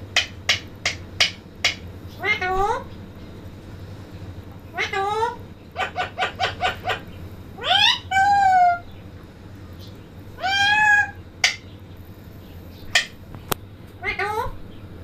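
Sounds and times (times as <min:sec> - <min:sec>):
parrot calling: 0:00.0 - 0:02.9, 0:04.7 - 0:09.1, 0:10.3 - 0:11.9, 0:14.0 - 0:14.6.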